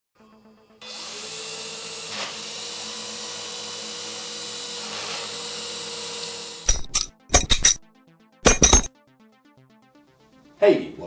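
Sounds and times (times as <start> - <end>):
small electric motors and propellers whining: 0.7 - 7.1.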